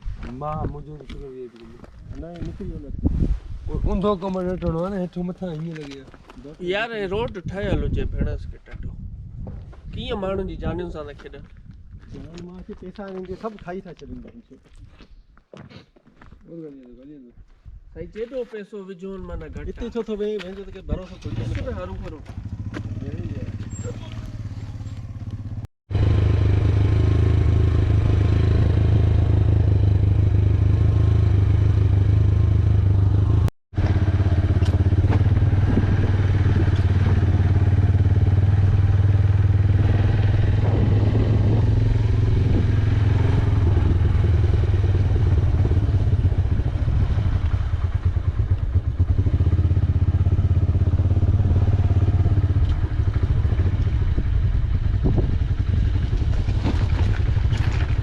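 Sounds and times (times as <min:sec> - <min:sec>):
motorcycle engine running: 0:21.2 - 0:58.0.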